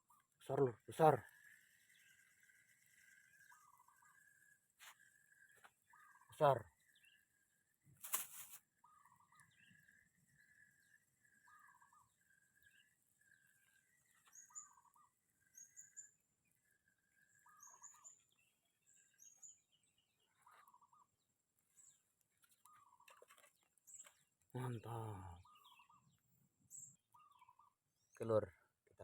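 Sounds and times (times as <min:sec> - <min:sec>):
high bird chirps: 0:14.1 - 0:16.2, 0:17.3 - 0:21.1, 0:22.6 - 0:27.8
birds whistling: 0:14.3 - 0:16.1, 0:17.4 - 0:18.4, 0:24.8 - 0:27.8.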